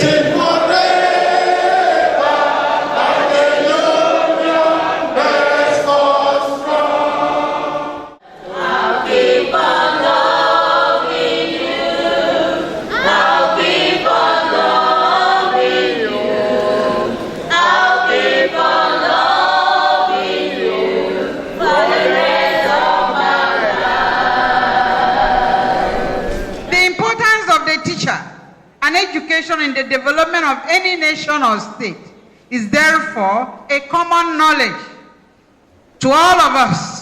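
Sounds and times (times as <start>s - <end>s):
group of voices singing: 0.0s - 26.7s.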